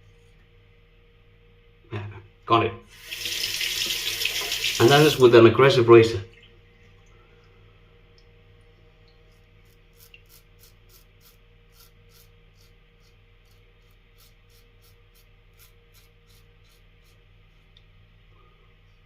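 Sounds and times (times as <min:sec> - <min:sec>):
razor scraping stubble: 0:09.6 - 0:17.3.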